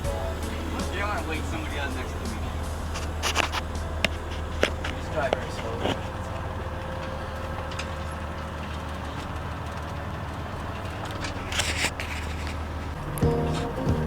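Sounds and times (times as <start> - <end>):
radio music: 0.0 - 7.6
vehicle engine humming: 0.0 - 14.0.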